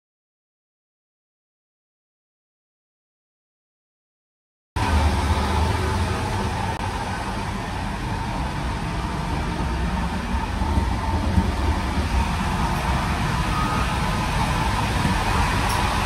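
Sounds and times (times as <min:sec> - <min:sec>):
train rumbling at speed: 0:04.8 - 0:16.0.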